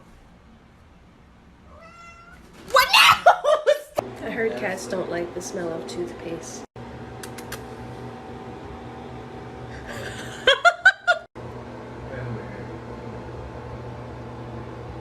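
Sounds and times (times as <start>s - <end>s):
person giggling: 9.7s - 11.3s.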